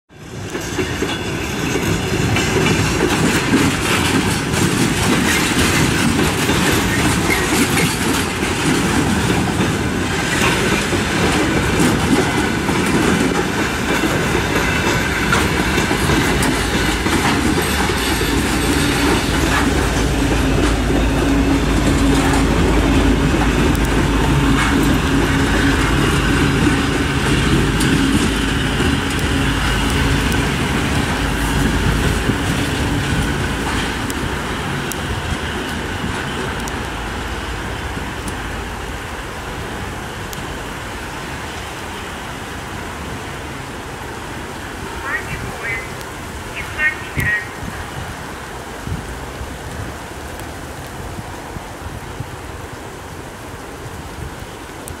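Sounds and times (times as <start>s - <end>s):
diesel locomotive engine drone: 0.1s - 55.0s
flatcars clacking over rail joints: 0.3s - 37.0s.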